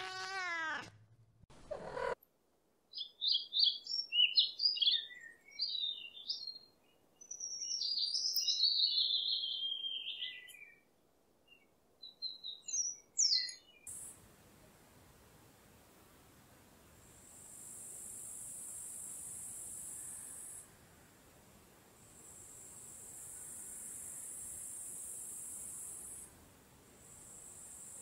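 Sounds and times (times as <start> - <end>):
cat meowing: 0.0 - 1.0, 1.6 - 2.2
songbird chirping: 2.8 - 14.2.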